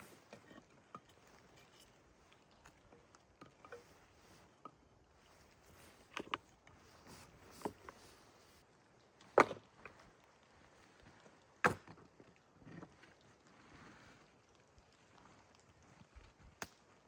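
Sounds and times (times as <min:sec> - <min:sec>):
light clicks and taps: 0:00.1 - 0:08.6.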